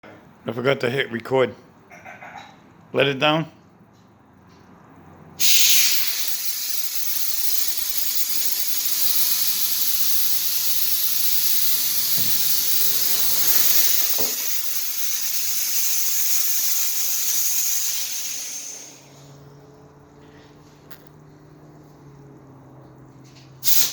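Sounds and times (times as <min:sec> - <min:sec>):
air suspension hissing: 0:05.4 - 0:19.5, 0:23.6 - 0:23.9.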